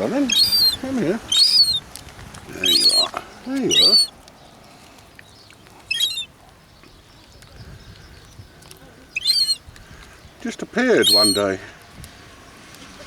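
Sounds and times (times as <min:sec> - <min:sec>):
gull squealing calls: 0:00.2 - 0:01.8, 0:02.6 - 0:03.1, 0:03.7 - 0:04.1, 0:05.9 - 0:06.3, 0:09.1 - 0:09.6, 0:11.0 - 0:11.5.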